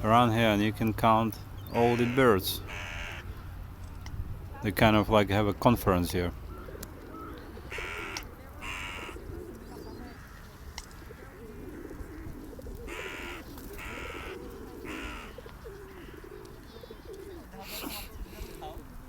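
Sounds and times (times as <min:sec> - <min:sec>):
birds warbling murmur: 0:00.0 - 0:19.0
short sharp gull calls: 0:01.7 - 0:03.2.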